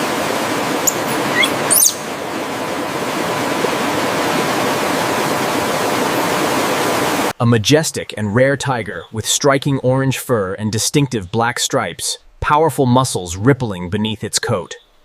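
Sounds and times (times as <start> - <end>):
flowing water rushing: 0.0 - 7.4
high bird chirps: 0.8 - 2.1.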